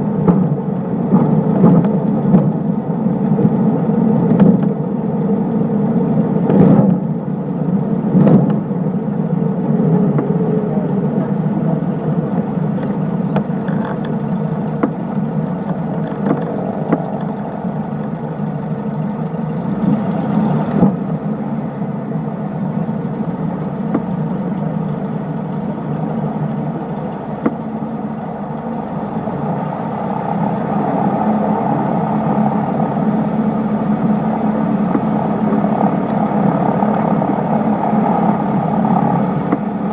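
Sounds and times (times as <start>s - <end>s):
airplane propeller engine drone: 0.0s - 39.9s.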